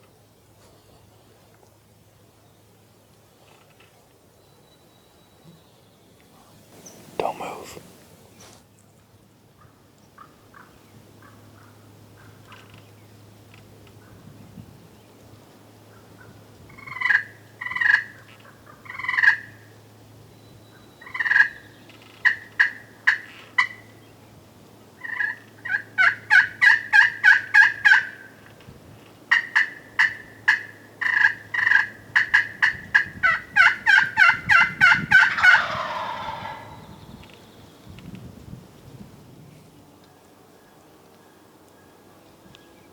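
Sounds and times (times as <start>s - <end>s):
turkey yelping: 29.3s - 37.0s.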